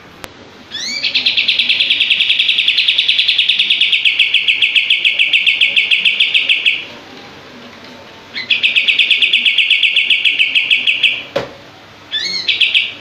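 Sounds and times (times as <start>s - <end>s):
bird singing fast trill: 0.7s - 6.9s, 8.4s - 11.3s, 12.1s - 13.0s.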